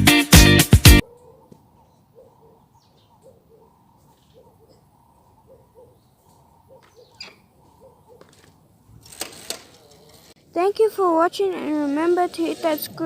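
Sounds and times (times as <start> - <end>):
bird cooing: 1.1 - 8.3.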